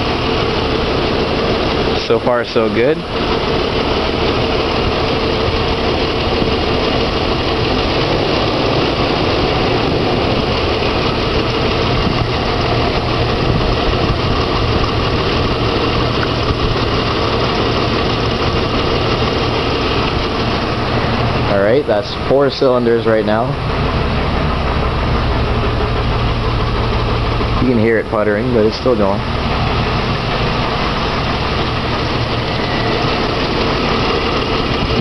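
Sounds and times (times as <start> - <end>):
engine idling roughly: 0.0 - 35.0.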